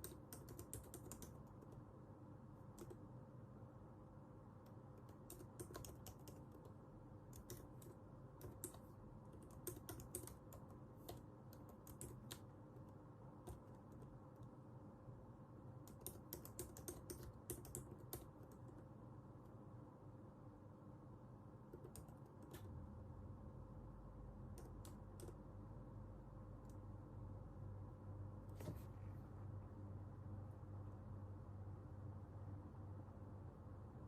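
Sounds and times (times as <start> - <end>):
computer keyboard key clicks: 0.0 - 1.8, 5.0 - 6.7, 7.3 - 12.5, 15.8 - 18.8.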